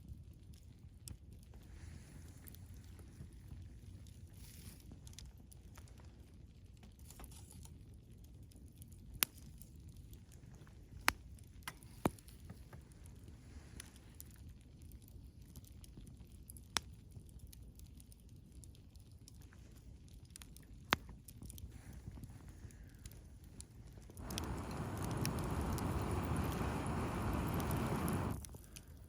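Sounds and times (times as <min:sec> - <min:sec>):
campfire burning: 0:00.1 - 0:07.0, 0:07.7 - 0:29.0
burning wood popping: 0:24.0 - 0:28.8.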